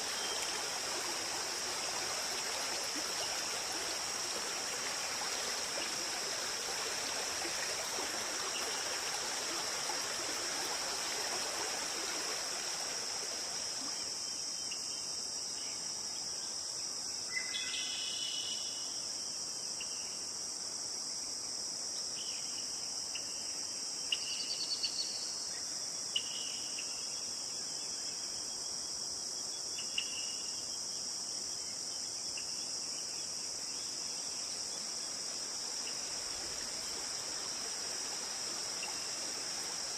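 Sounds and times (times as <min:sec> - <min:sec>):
river stream rushing: 0:00.0 - 0:13.8, 0:35.2 - 0:39.9
high-pitched insect chorus: 0:00.0 - 0:39.9.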